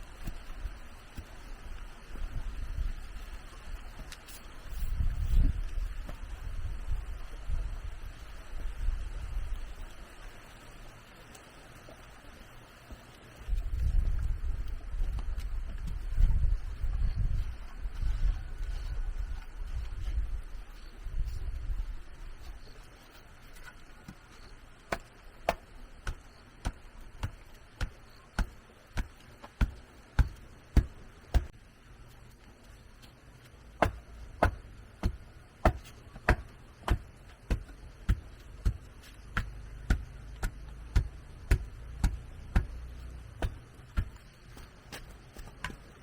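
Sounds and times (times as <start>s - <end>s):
hand tool striking wood: 24.9s - 31.5s, 33.8s - 45.8s.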